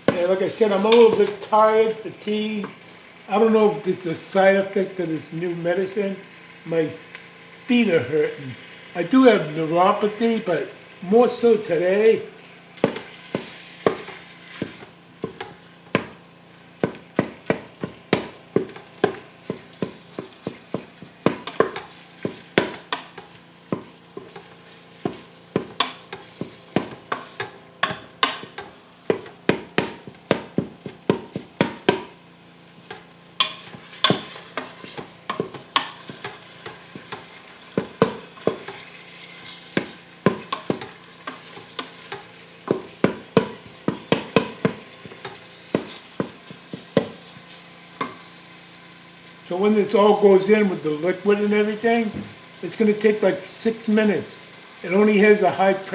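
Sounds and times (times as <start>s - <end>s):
faint sizzle: 0.0s - 55.9s
utensil knocking against pot: 16.8s - 32.2s, 32.9s - 38.8s, 39.8s - 47.2s.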